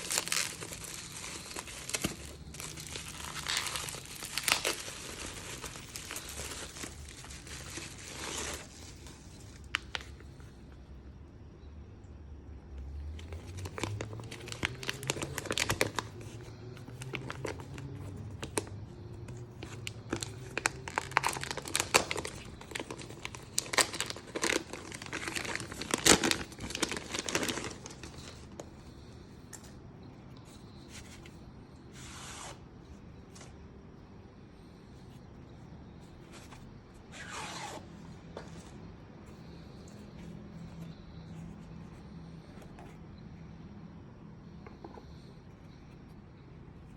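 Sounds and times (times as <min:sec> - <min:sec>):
wrapping crinkling and tearing: 0:00.0 - 0:10.3, 0:13.2 - 0:29.0.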